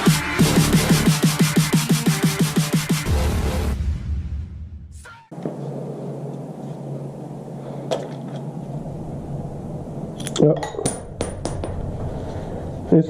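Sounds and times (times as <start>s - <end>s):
steady background hum: 5.3s - 13.0s.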